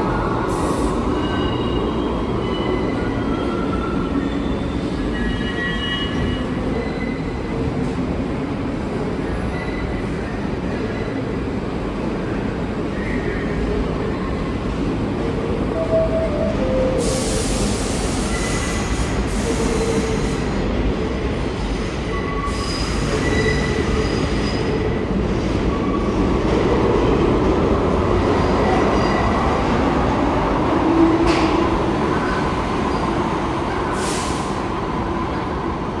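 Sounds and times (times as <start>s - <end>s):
subway train rumble: 0.0s - 36.0s
wheels squealing on rails: 0.5s - 7.7s, 15.8s - 20.6s, 22.1s - 26.8s, 27.9s - 34.8s.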